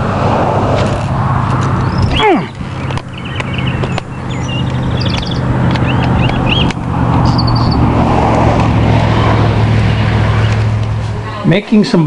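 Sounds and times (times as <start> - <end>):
broad rushing noise: 0.0 - 12.0
bird chirping: 1.8 - 8.0.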